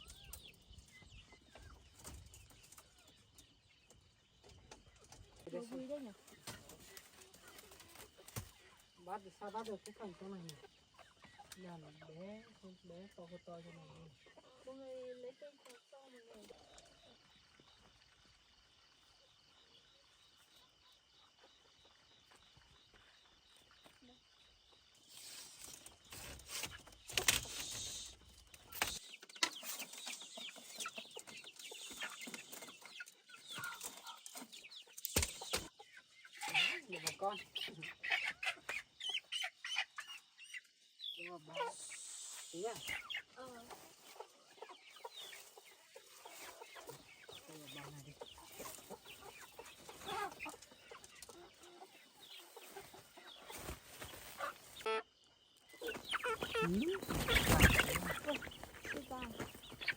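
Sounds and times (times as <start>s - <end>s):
chicks cheeping: 0.0s - 59.9s.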